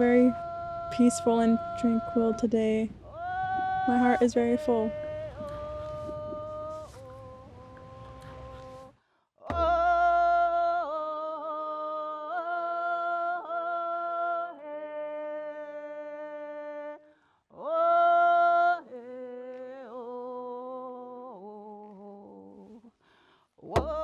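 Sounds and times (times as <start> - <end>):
person singing long notes: 0.0 - 8.9, 23.7 - 24.0
low thump: 9.5 - 10.5, 23.8 - 24.0.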